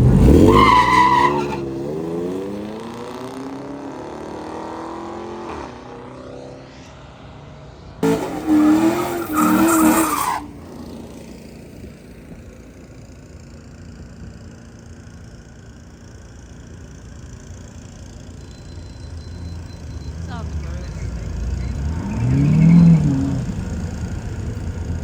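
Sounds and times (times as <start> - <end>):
engine revving: 0.0 - 7.0, 8.0 - 11.0, 19.1 - 25.0
car engine accelerating: 0.0 - 25.0
low engine rumble: 10.4 - 25.0.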